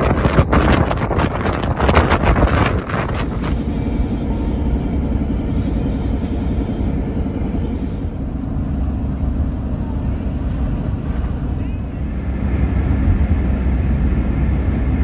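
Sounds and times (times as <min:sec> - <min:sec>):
wind buffeting microphone: 0:00.0 - 0:05.5
car driving rumble: 0:00.0 - 0:15.0.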